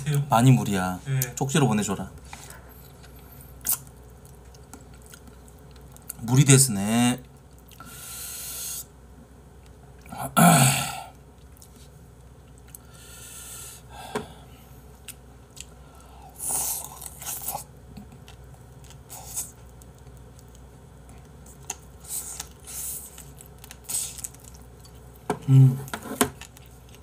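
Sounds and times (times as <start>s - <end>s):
person chewing: 2.6s - 6.2s, 11.4s - 12.9s, 15.0s - 27.0s.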